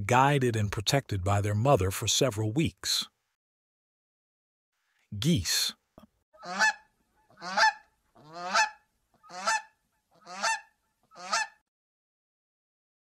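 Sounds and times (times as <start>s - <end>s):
goose honking: 6.4s - 11.6s.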